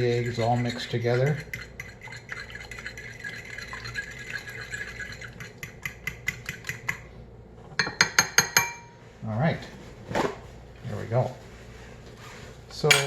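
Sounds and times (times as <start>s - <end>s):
fork whisking eggs in bowl: 0.0s - 7.1s.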